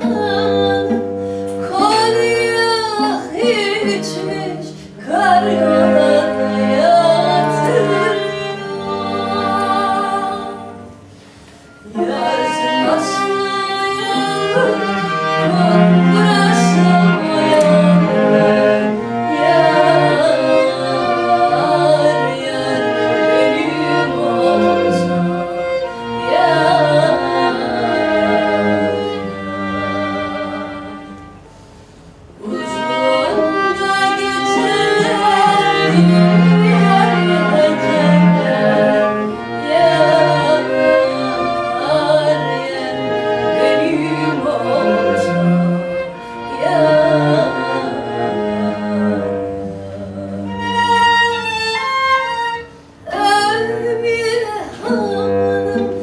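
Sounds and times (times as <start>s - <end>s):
woman singing folk song: 0.0s - 10.6s, 11.9s - 18.4s, 53.0s - 56.0s
bowed strings: 0.0s - 56.0s.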